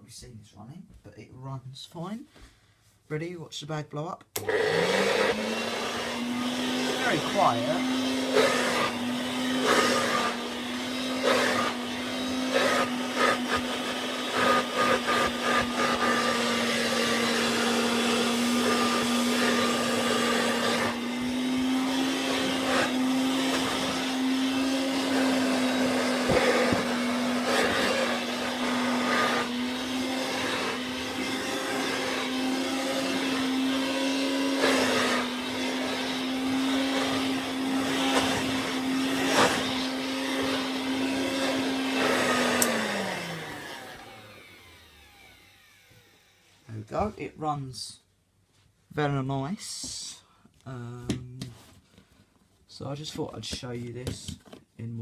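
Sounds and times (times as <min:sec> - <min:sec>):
handheld vacuum cleaner running: 0:04.4 - 0:47.1.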